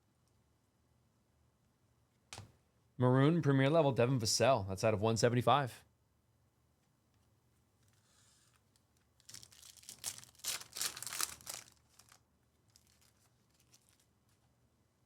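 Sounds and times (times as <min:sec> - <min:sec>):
wrapper crinkling and tearing: 0:08.4 - 0:14.4.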